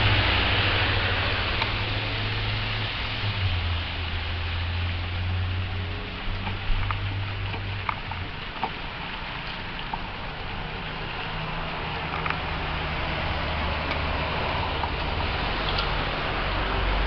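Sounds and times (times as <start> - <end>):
passing traffic hum: 0.0 - 17.0.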